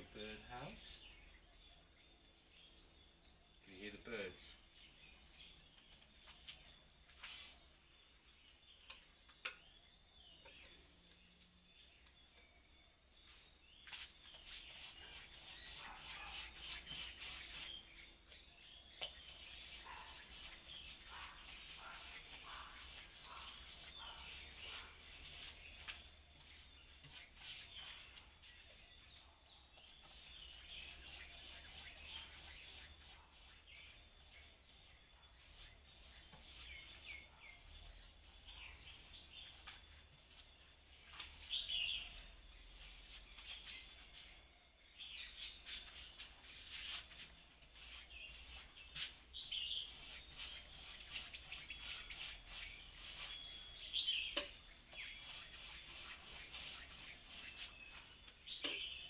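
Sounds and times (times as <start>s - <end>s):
birds chirping and singing: 0.0s - 59.0s
rubbing sound: 7.1s - 7.6s, 13.4s - 18.1s, 19.0s - 28.7s, 29.7s - 58.3s.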